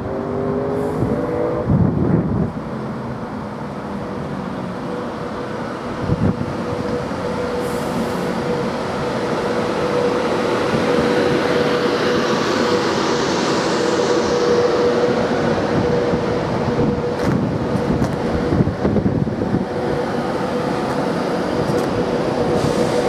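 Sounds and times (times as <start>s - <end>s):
train wheels rumbling on rail: 0.0s - 23.0s
hiss: 22.5s - 23.0s.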